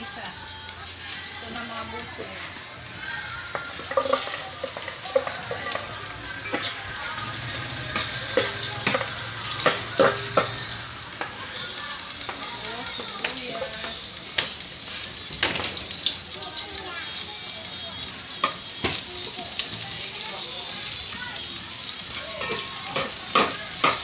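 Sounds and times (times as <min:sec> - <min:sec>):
garlic sizzling in hot oil: 0:00.0 - 0:24.0
metal spatula scraping a pot: 0:02.9 - 0:12.3.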